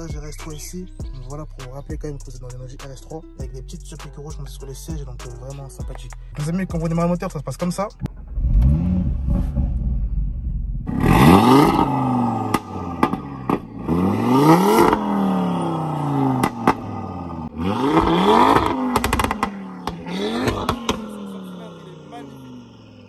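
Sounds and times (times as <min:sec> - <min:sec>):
car engine revving: 0:06.4 - 0:23.0
exhaust pops and crackles: 0:12.5 - 0:13.8, 0:16.4 - 0:17.0, 0:17.9 - 0:21.2.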